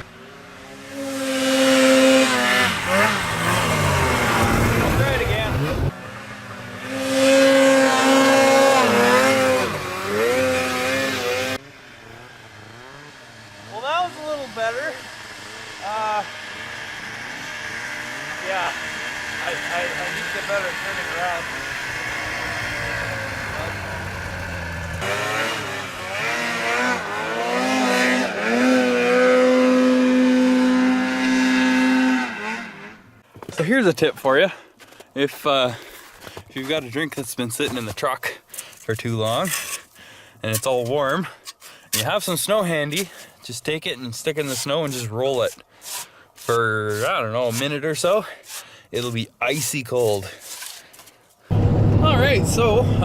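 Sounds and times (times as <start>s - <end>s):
snowmobile engine revving: 0.0s - 34.4s, 51.5s - 53.0s.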